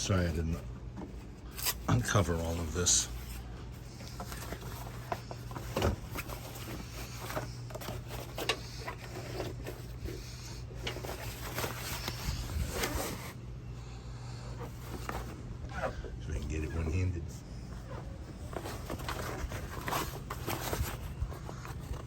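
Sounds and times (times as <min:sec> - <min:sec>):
steady low hum: 0:00.0 - 0:22.0
canvas cover rustling and scraping: 0:01.5 - 0:13.4, 0:17.8 - 0:22.0.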